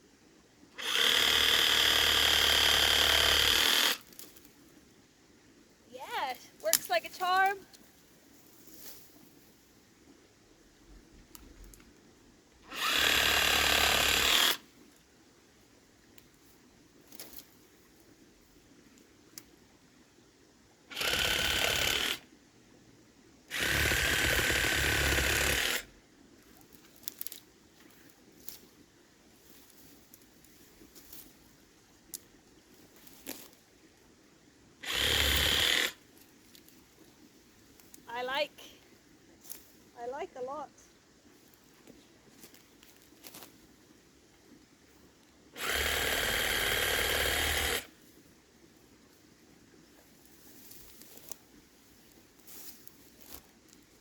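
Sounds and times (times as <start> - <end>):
reciprocating saw cutting: 0.8 - 4.0, 12.7 - 14.6, 20.9 - 22.2, 23.5 - 25.9, 34.8 - 36.0, 45.6 - 47.9.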